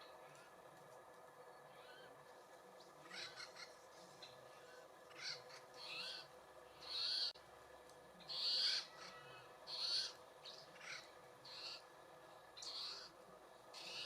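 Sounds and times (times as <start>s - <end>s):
bird harsh raspy calls: 1.6s - 2.2s, 2.8s - 7.4s, 8.2s - 11.9s, 12.6s - 14.0s.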